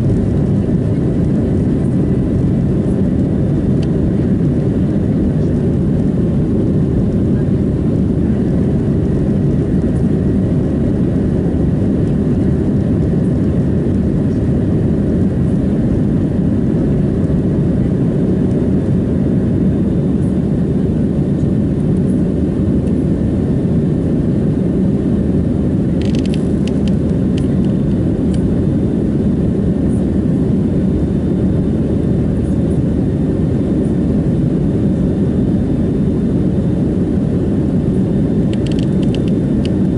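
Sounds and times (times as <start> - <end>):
airplane cabin engine drone: 0.0 - 39.9
brief clicks: 38.5 - 39.4.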